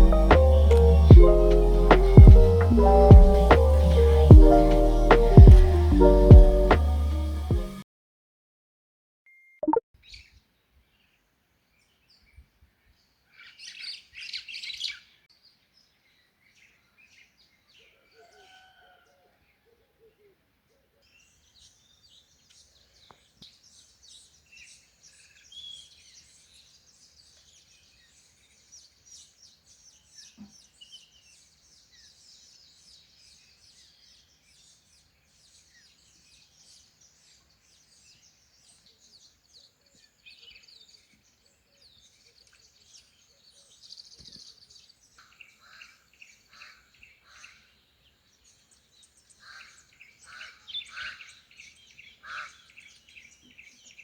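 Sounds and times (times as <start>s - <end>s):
birds chirping and singing: 0.0s - 7.5s.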